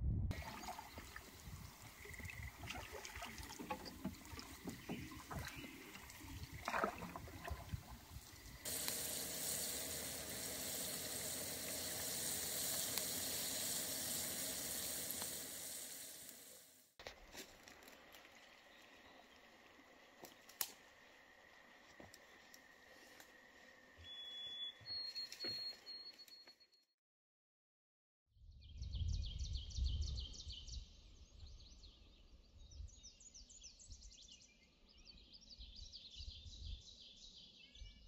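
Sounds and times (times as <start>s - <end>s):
water dripping and lapping: 0.3s - 23.2s
food sizzling in oil: 8.1s - 16.8s.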